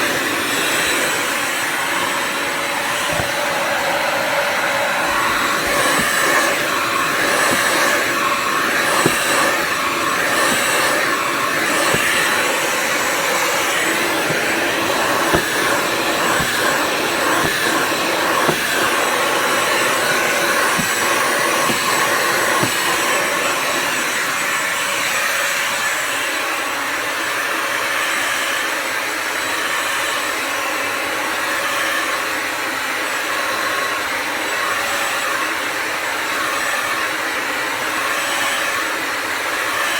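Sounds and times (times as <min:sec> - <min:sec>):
vacuum motor whine: 0:00.0 - 0:39.9
clicks and knocks: 0:03.0 - 0:03.5, 0:10.3 - 0:19.0, 0:19.6 - 0:23.2.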